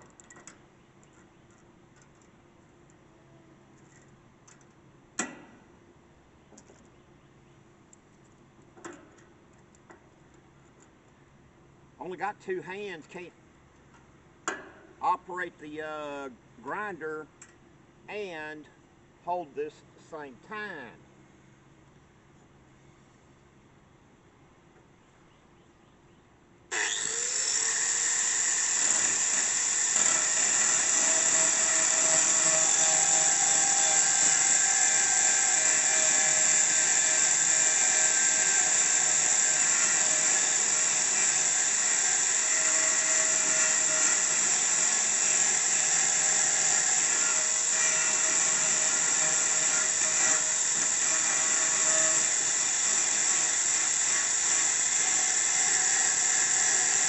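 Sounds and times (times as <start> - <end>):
grinder whining on steel: 26.7 - 57.0.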